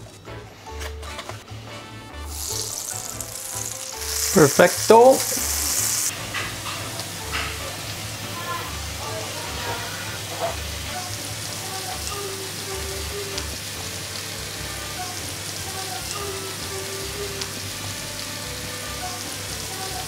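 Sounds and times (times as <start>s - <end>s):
food sizzling in butter: 2.2s - 20.0s.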